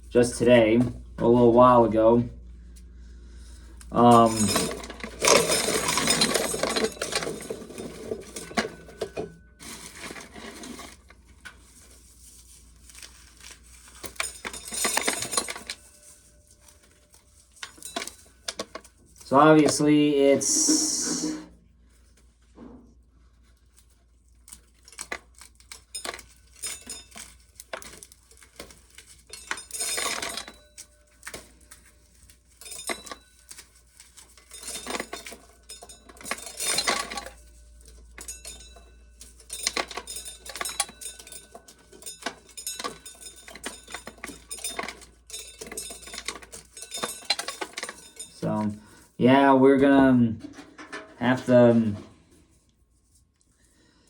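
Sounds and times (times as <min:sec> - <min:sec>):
corn kernels clattering into container: 0:17.6 - 0:21.4.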